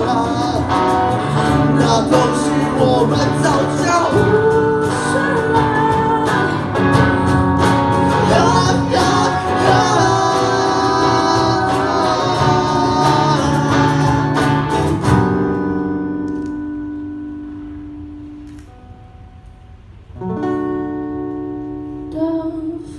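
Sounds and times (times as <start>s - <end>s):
person singing: 0.0s - 15.2s
guitar strumming: 0.0s - 22.8s.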